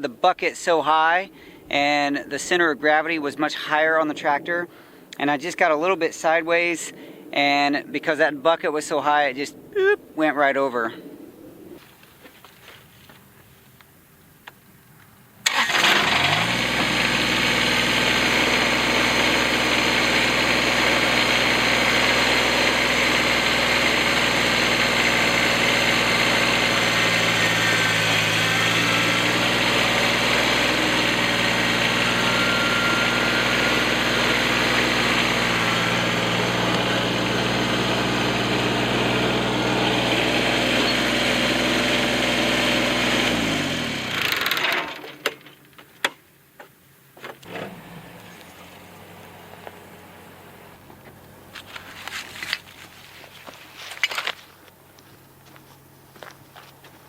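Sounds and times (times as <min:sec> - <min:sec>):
vehicle engine idling: 0:15.4 - 0:44.3, 0:47.4 - 0:53.8, 0:54.4 - 0:57.0.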